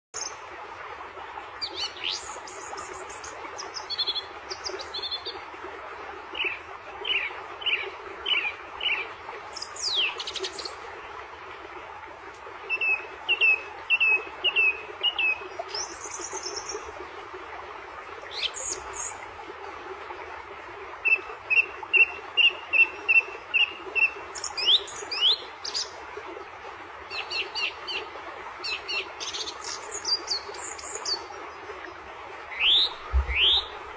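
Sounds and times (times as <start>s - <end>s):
songbirds chirping: 21.0s - 33.9s.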